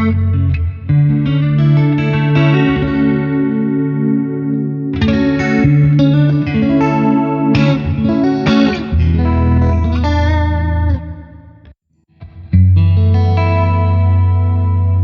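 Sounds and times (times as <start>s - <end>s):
electric guitar notes: 0.0s - 15.0s.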